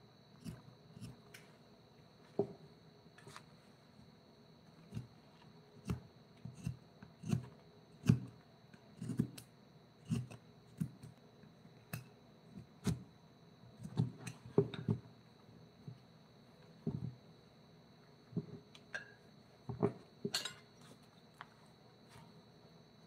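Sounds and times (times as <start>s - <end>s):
wood-carving tools knocking and clicking: 13.8s - 15.1s.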